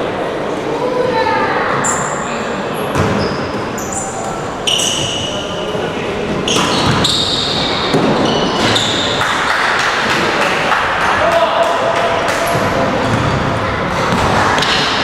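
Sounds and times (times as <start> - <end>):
players' voices in gym: 0.0 - 15.0
sneakers squeaking on court: 1.8 - 5.6, 6.4 - 9.2
basketball bouncing: 12.5 - 14.7.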